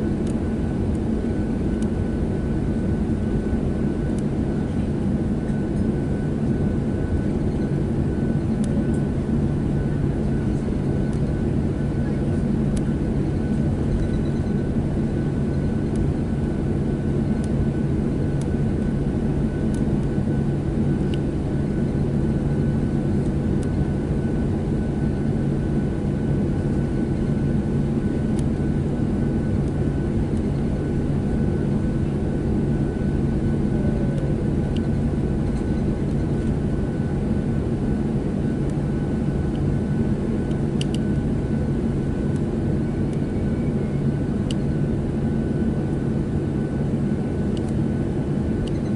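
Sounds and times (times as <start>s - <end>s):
aircraft cabin engine drone: 0.0s - 48.9s.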